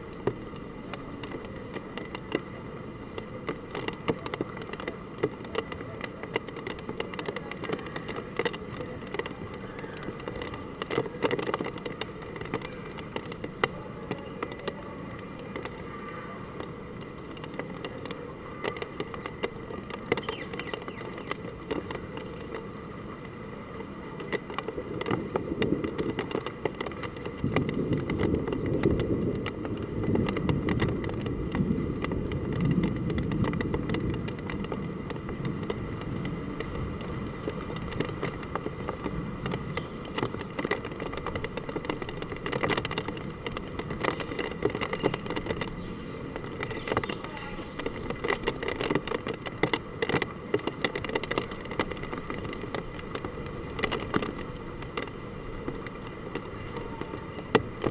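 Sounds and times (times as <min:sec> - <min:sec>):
drops tapping hard surfaces: 0:24.2 - 0:57.9
heavy rain and wind rushing: 0:24.7 - 0:57.9.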